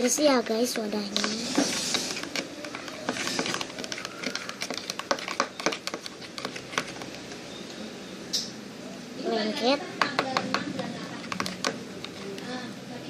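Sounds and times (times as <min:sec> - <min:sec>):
slime stirred with sticky clicks: 0:00.0 - 0:07.4.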